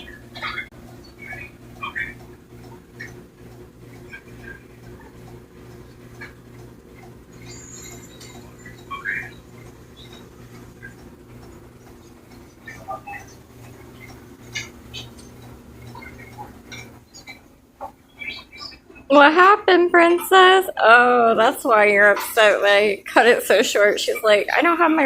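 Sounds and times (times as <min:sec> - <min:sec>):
low hum: 0:00.0 - 0:21.8
scratching and clicking: 0:00.3 - 0:19.1.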